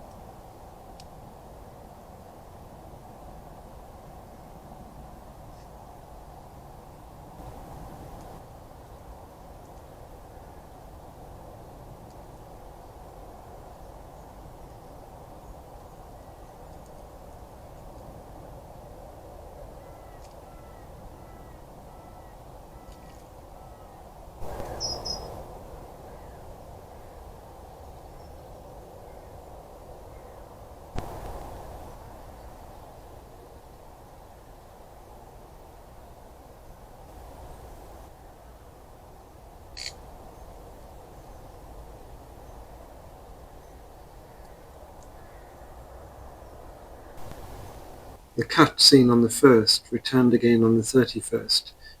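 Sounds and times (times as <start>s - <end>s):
steady recording hiss: 0.0s - 52.0s
bird call with high chirps: 19.8s - 25.4s
short repeated bird notes: 24.4s - 25.4s
faint high ticks: 39.7s - 40.0s.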